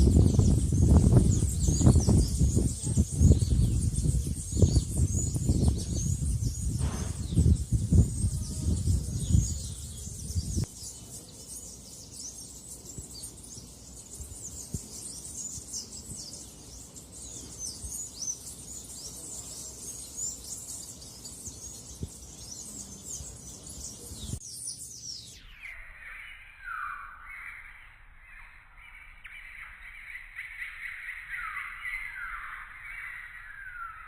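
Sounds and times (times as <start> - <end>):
small birds twittering: 0.0 - 34.0
low thumps and rumble: 3.1 - 10.7.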